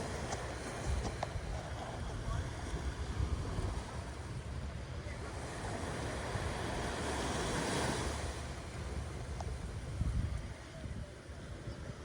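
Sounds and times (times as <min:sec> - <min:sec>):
ocean wave breaking: 0:00.0 - 0:10.7
wind buffeting microphone: 0:00.0 - 0:12.0.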